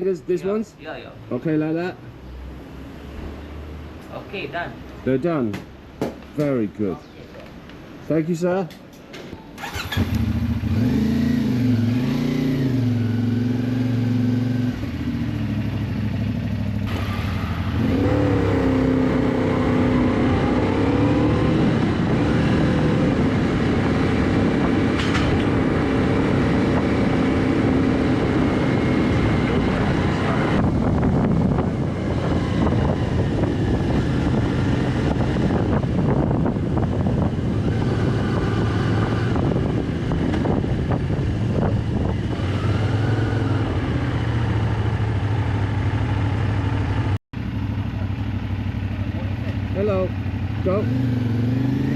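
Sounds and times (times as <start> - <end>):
motorcycle engine starting and idling: 9.4 - 11.9, 13.9 - 17.8
motorcycle engine revving: 9.6 - 51.9.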